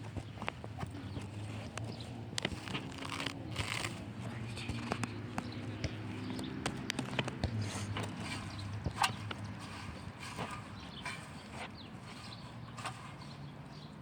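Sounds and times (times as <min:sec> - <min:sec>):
dry grass crackling: 0:00.9 - 0:04.9.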